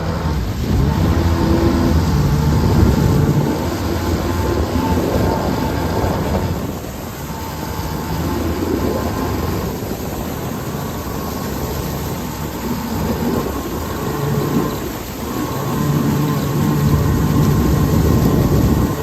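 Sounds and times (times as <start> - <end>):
jet ski engine running: 0.0 - 19.0.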